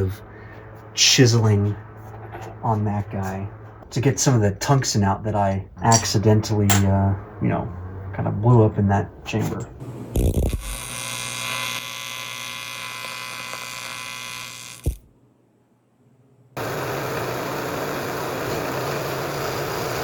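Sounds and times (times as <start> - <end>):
milling machine whining: 16.6 - 20.0.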